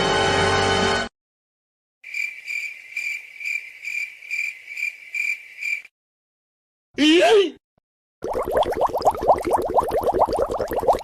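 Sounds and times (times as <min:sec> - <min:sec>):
crickets chirping: 0:02.0 - 0:05.9.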